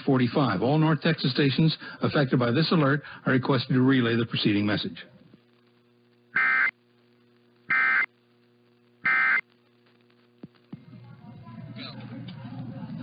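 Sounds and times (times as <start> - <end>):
faint steady hum: 0.0 - 13.0
two-tone digital data bursts: 6.4 - 6.7, 7.7 - 8.1, 9.0 - 9.4.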